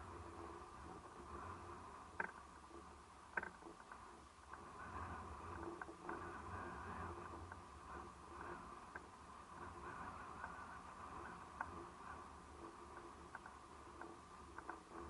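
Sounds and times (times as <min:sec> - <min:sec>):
calm sea shoreline ambience: 0:00.0 - 0:15.0.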